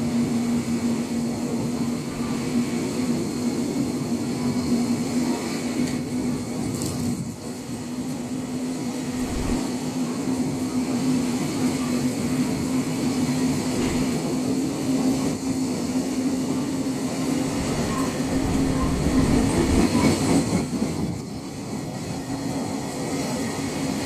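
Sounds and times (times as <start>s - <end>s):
constant low hum: 9.0s - 9.7s, 17.3s - 20.1s
freight train wagons rolling: 17.1s - 21.1s.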